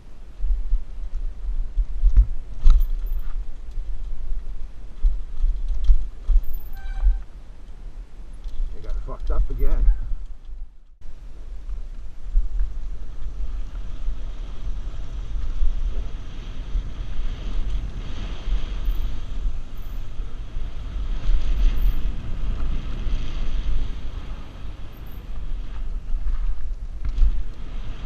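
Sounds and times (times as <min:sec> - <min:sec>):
wind buffeting microphone: 0:00.0 - 0:28.0
rushing noise of bike descent: 0:11.0 - 0:28.0.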